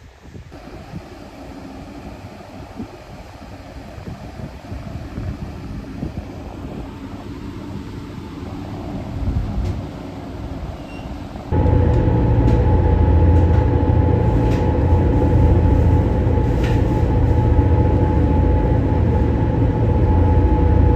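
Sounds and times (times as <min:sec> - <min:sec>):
wind buffeting microphone: 0:00.0 - 0:20.9
low rumble: 0:11.5 - 0:20.9.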